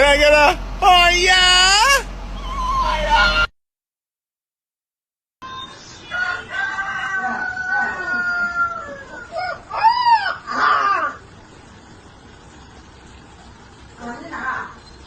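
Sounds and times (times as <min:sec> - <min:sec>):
rooster crowing: 0:06.0 - 0:11.2.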